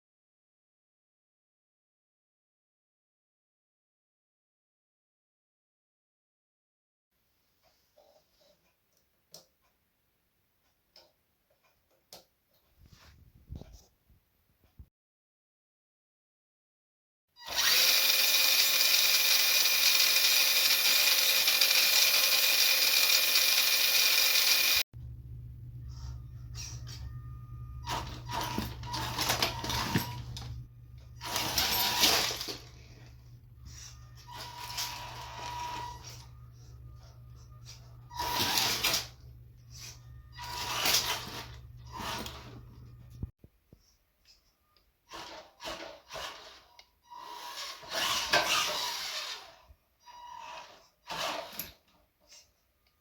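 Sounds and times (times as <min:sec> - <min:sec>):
toy truck electric motor whirr: 0:17.4 - 0:24.8, 0:27.8 - 0:43.3, 0:45.0 - 0:52.5
steady low hum: 0:25.0 - 0:34.8.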